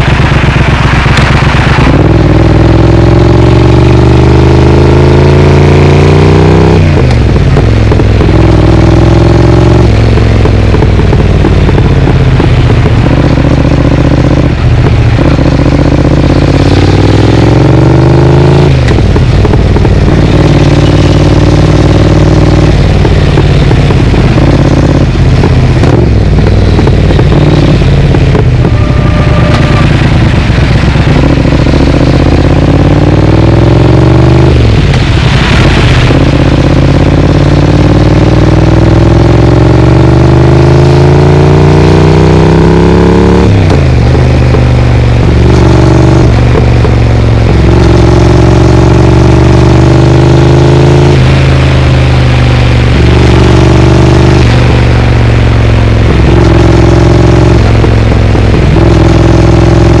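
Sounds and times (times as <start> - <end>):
motorcycle engine accelerating: 0.0 - 60.0.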